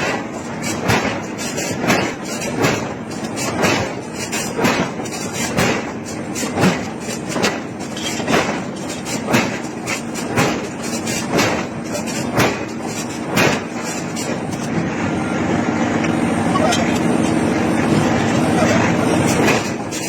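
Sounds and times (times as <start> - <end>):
hammer striking hot iron: 0.0 - 13.9.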